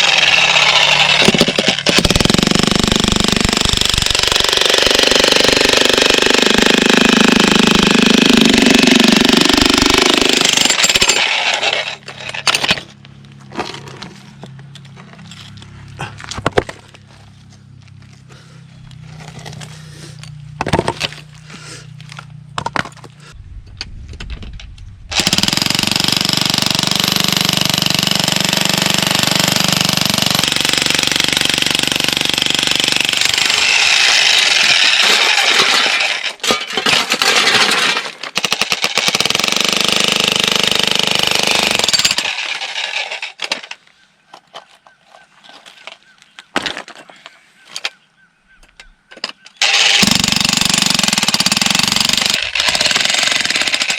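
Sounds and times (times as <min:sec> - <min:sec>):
jackhammer breaking stone: 0:00.0 - 0:12.9, 0:25.1 - 0:43.7, 0:49.6 - 0:53.9.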